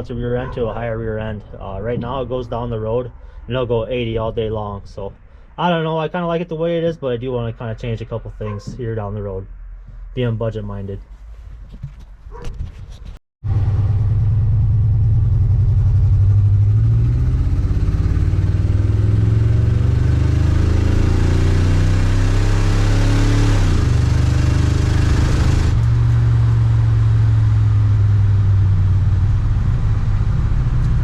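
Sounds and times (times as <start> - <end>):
car engine accelerating: 13.4 - 31.0.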